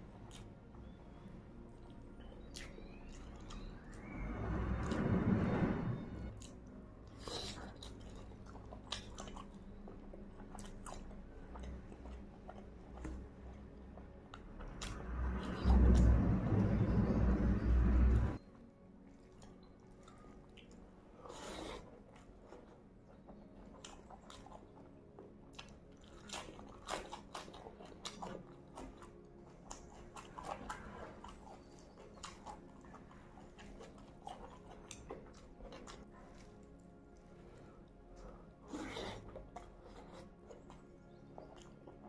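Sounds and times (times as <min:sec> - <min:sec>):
loud low background rumble: 0:00.0 - 0:07.2, 0:11.1 - 0:18.9
wet chewing with crunches: 0:00.0 - 0:42.0.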